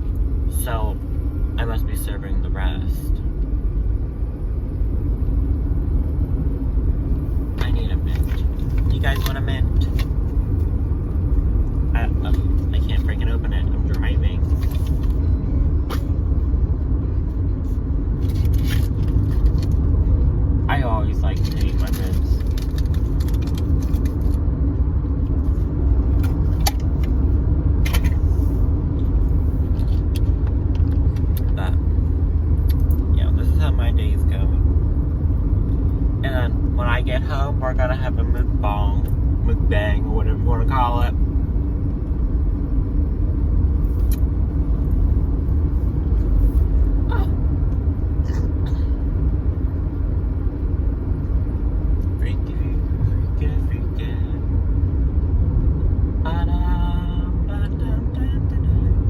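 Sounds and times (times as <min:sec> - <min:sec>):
road and engine rumble in car: 0:00.0 - 0:59.0.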